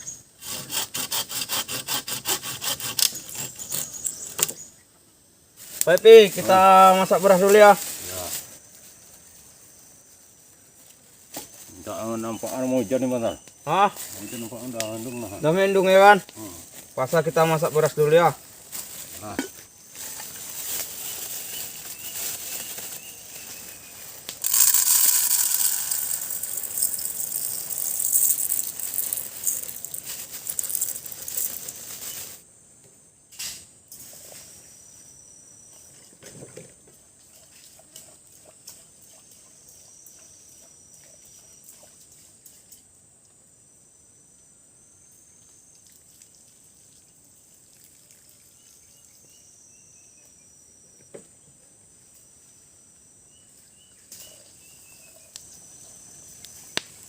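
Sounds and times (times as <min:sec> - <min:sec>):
high-pitched insect drone: 0:06.0 - 0:32.5
water pouring and splashing: 0:24.4 - 0:32.1, 0:45.9 - 0:48.6.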